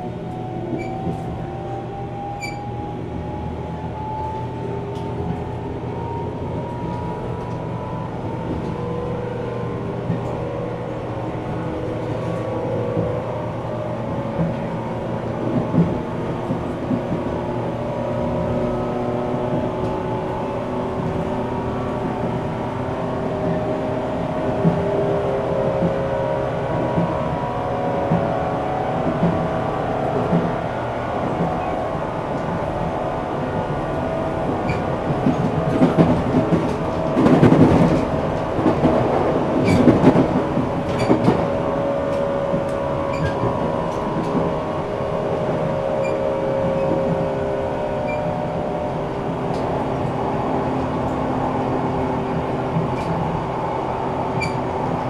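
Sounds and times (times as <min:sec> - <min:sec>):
train motor hum: 0:00.0 - 0:55.0
rail-joint clicks: 0:00.3 - 0:01.4, 0:34.4 - 0:44.6, 0:49.4 - 0:50.1, 0:52.7 - 0:53.6, 0:54.2 - 0:55.0
loud train clattering: 0:04.4 - 0:55.0.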